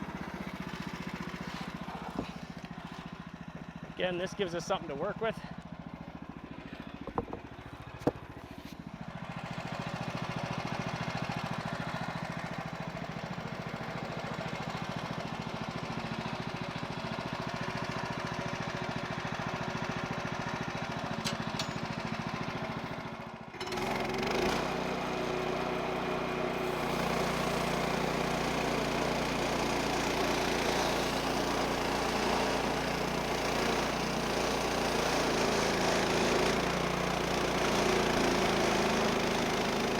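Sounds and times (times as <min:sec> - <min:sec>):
sawmill engine running: 0:00.0 - 0:39.9
band saw cutting log: 0:07.0 - 0:08.9, 0:23.6 - 0:39.9.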